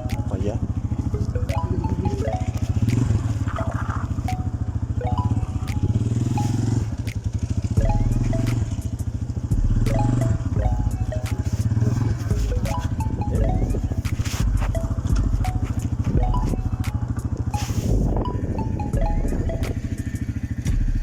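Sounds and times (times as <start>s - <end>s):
motorcycle engine running: 0.0s - 21.0s
sharp clicks: 5.6s - 5.9s, 7.0s - 7.5s.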